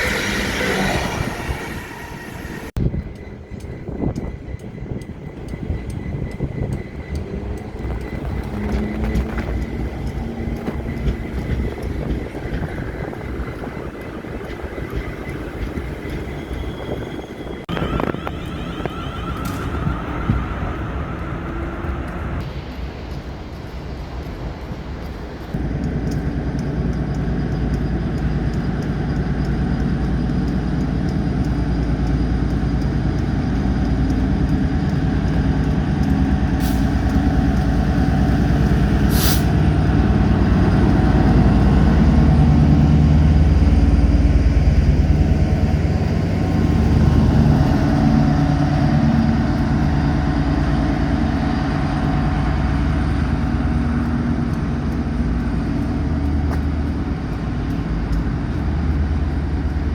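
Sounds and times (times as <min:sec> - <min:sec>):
train engine rumbling: 0:00.0 - 0:59.9
air hisses: 0:39.1 - 0:39.6.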